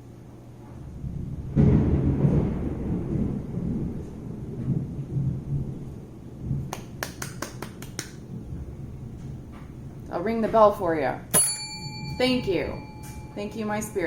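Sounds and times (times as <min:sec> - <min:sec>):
thunder crack and rumble: 0:00.6 - 0:06.7, 0:08.2 - 0:10.1.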